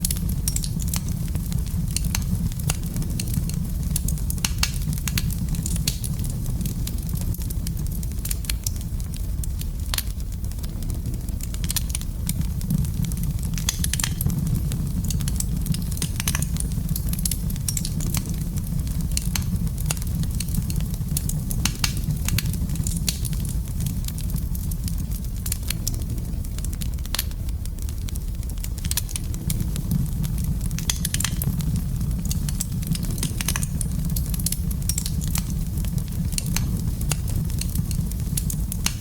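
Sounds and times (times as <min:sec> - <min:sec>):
fire crackling and popping: 0:00.0 - 0:39.0
flames rumbling: 0:00.0 - 0:39.0.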